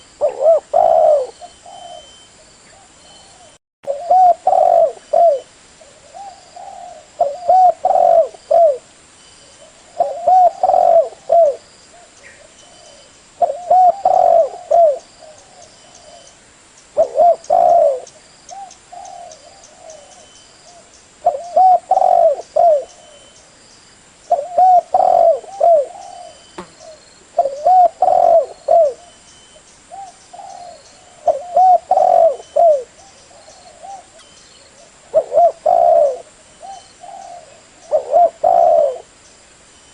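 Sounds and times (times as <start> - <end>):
dove cooing: 0.0 - 8.9, 9.5 - 16.4, 17.0 - 23.4, 24.3 - 29.2, 29.9 - 39.1.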